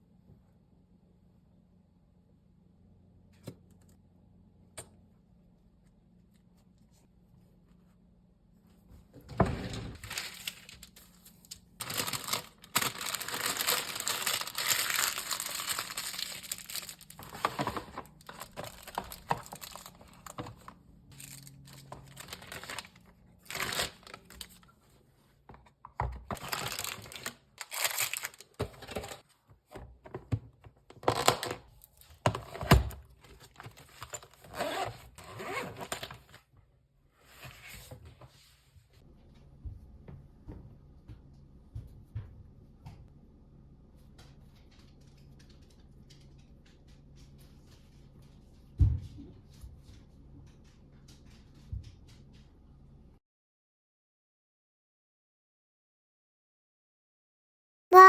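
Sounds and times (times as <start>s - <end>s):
packaging crinkling and tearing: 10.0s - 24.6s, 26.3s - 29.2s.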